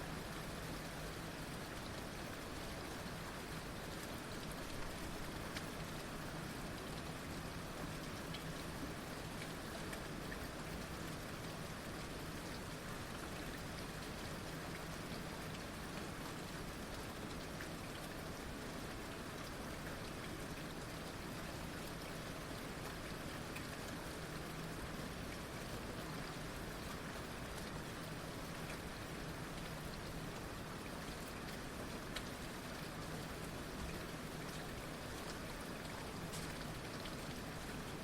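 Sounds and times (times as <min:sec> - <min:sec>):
heavy rain: 0:00.0 - 0:38.0.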